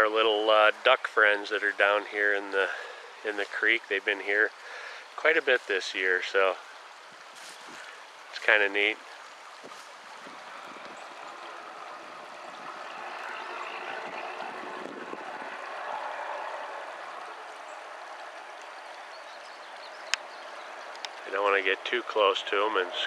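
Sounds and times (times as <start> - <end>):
creek water running: 0.0 - 23.0.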